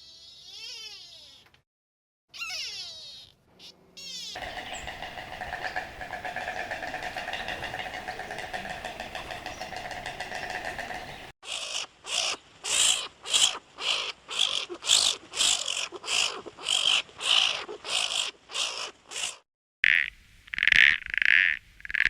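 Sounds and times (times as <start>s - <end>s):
animal harsh hissy calls: 4.1s - 19.4s.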